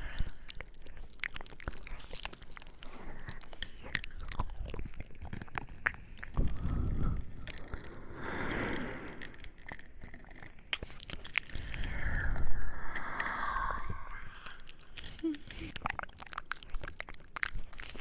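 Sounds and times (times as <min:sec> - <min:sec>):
soft breathing: 0:00.0 - 0:01.1, 0:06.3 - 0:10.0, 0:11.2 - 0:15.8
wet lip and tongue clicks: 0:00.0 - 0:18.0.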